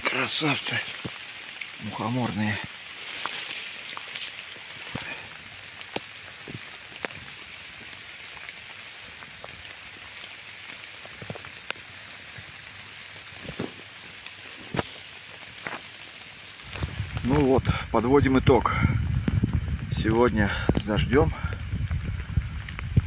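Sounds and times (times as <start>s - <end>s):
rain falling on leaves: 0.0s - 23.0s.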